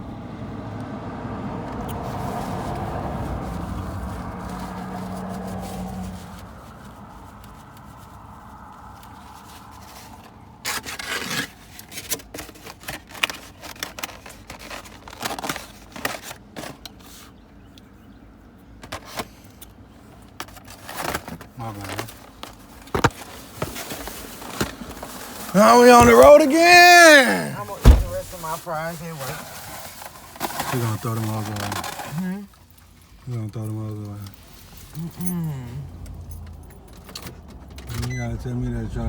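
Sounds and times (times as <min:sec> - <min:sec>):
car interior rumble and hum: 0:00.0 - 0:07.2, 0:25.5 - 0:29.0, 0:33.0 - 0:39.0
keys and packaging rustling: 0:11.8 - 0:17.2, 0:20.2 - 0:32.8.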